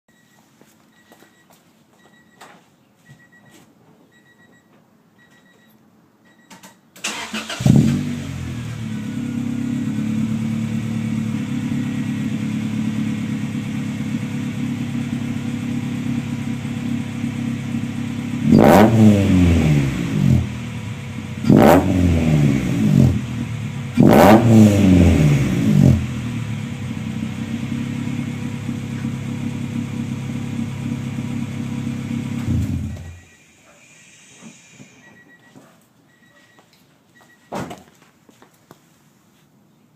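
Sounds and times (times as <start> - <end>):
car engine starting: 7.0 - 35.1
car engine revving: 7.1 - 33.2
car engine idling: 7.1 - 35.0.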